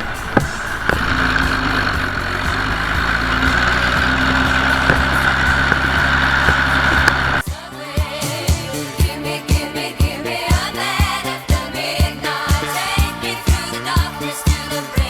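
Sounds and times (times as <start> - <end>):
tractor engine running: 0.0 - 7.5
machinery whine: 0.0 - 15.0
music with a beat: 0.0 - 15.0.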